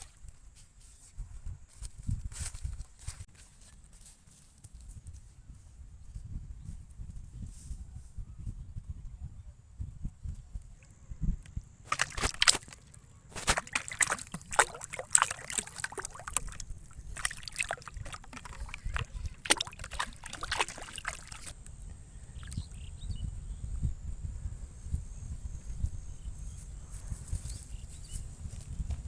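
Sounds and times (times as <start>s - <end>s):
water sloshing and splashing: 0.0s - 0.2s, 11.9s - 21.6s, 22.4s - 22.6s.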